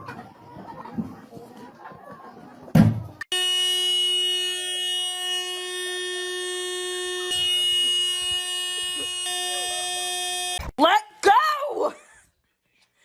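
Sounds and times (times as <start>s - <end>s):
electronic buzzer tone: 3.3s - 10.7s.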